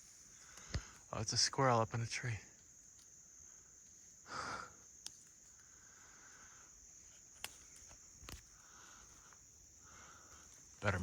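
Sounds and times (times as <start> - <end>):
insects droning: 0.0 - 11.0
small sharp ticks: 0.4 - 1.1, 2.5 - 3.2, 4.9 - 9.5.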